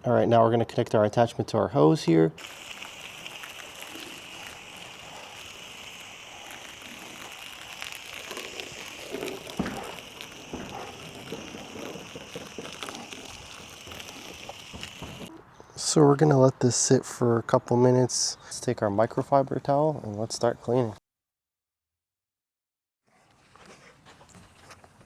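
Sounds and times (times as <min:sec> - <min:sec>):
foam spray hissing: 0:02.4 - 0:15.3.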